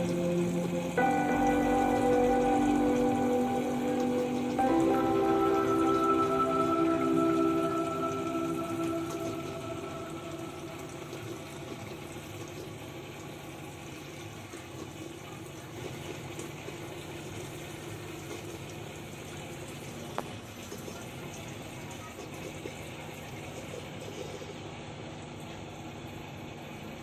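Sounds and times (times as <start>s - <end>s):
fountain water trickling: 0.0s - 27.0s.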